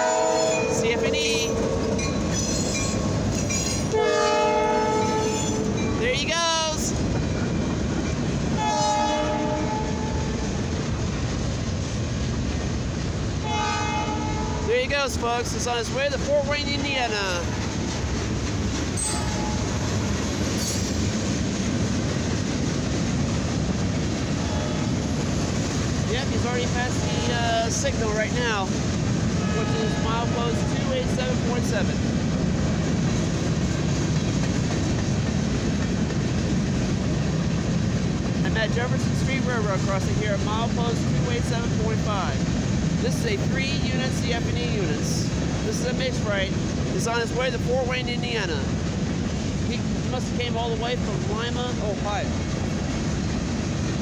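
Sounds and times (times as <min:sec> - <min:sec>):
locomotive horn blast: 0:00.0 - 0:01.8, 0:03.9 - 0:05.8, 0:08.6 - 0:10.2, 0:13.4 - 0:14.6, 0:29.4 - 0:30.9
freight cars rolling on rails: 0:00.0 - 0:54.0.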